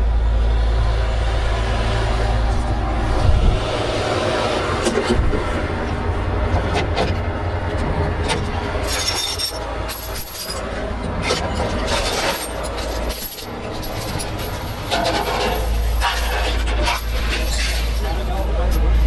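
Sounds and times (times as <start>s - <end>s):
heavy truck engine running: 0.0s - 19.0s
metallic clinks and knocks: 11.2s - 18.9s.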